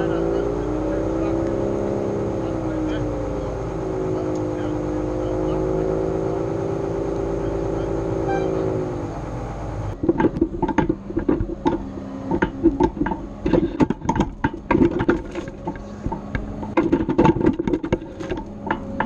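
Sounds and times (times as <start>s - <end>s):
loader engine: 0.0s - 19.0s
sharp clicks and knocks: 9.9s - 19.0s.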